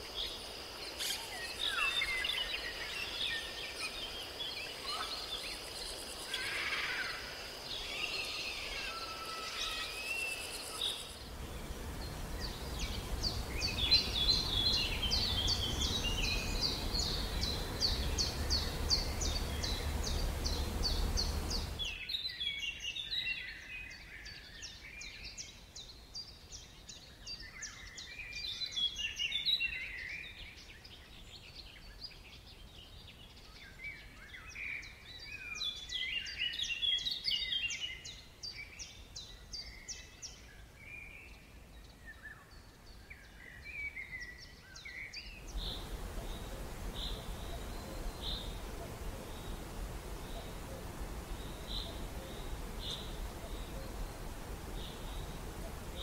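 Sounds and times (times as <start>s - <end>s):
small birds chirping and trilling: 0.0s - 56.0s
low rumble and hiss: 10.2s - 22.2s, 45.4s - 56.0s.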